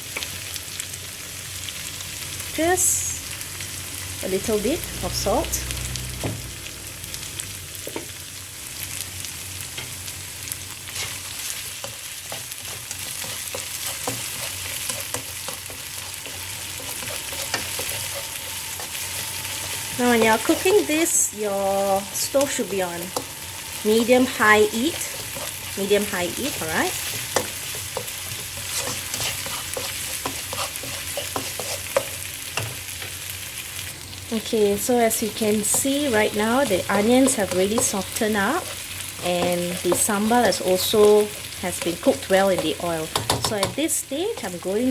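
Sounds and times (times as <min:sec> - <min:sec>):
food sizzling in oil: 0:00.0 - 0:44.9
utensil scraping a pan: 0:10.9 - 0:32.8.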